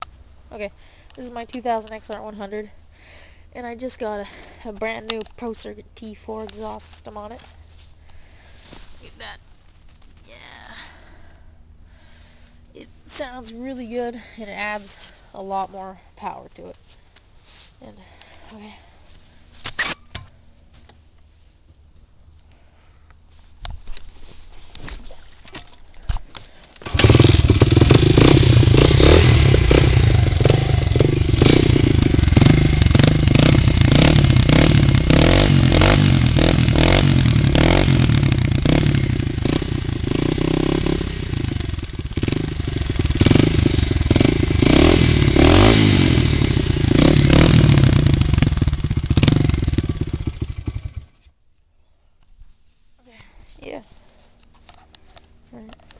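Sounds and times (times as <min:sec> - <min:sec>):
dirt bike engine running: 0:26.8 - 0:51.2.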